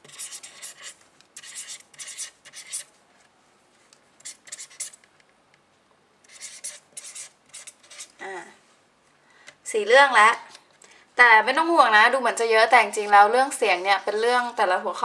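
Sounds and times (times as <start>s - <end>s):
pen scratching while writing: 0.0s - 2.9s, 4.2s - 5.0s, 6.3s - 8.1s.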